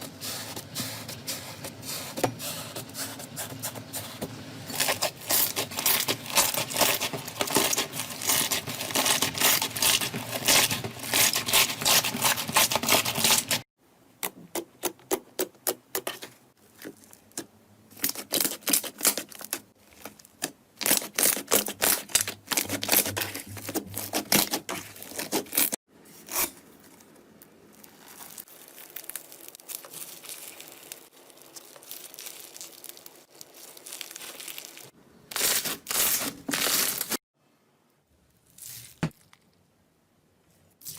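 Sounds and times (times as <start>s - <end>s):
slime crackling and squishing: 4.7s - 13.7s, 16.8s - 37.2s.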